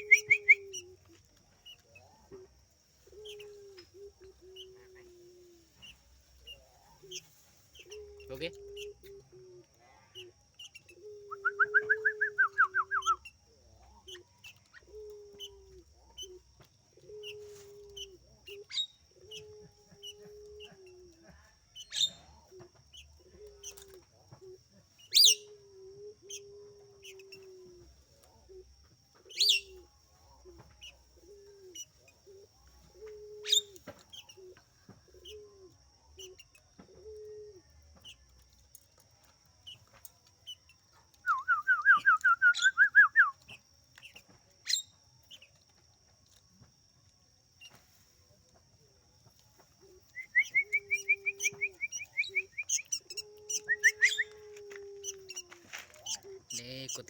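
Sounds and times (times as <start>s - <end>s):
doves cooing: 0.0s - 38.4s, 40.5s - 44.8s, 48.5s - 57.0s
small birds chirping: 0.0s - 57.0s.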